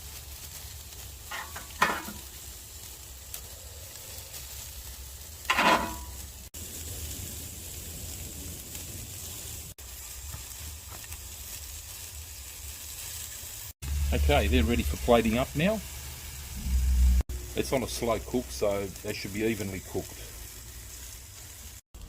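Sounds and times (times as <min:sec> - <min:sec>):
steaks sizzling on a grill: 0:00.0 - 0:22.0
sharp metal clanks: 0:01.3 - 0:02.2, 0:05.5 - 0:06.2.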